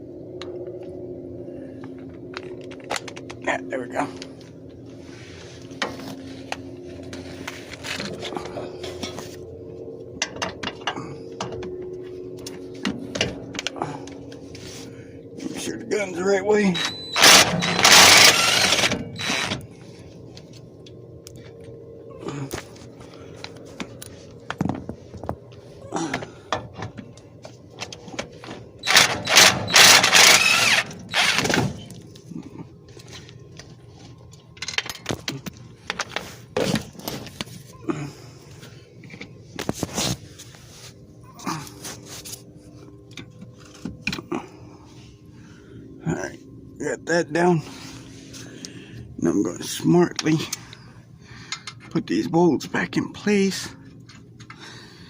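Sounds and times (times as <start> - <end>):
steady low hum: 0.0 - 55.0
impact gun bursts: 17.2 - 19.6, 28.8 - 31.7.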